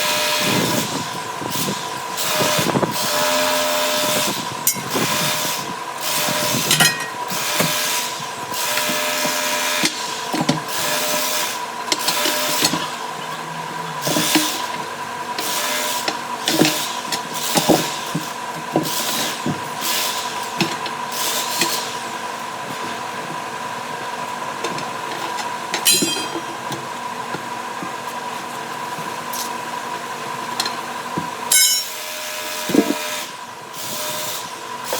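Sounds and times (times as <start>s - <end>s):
steady machine hum: 0.0s - 34.9s
harsh pneumatic tool bursts: 1.5s - 12.8s, 31.5s - 34.9s.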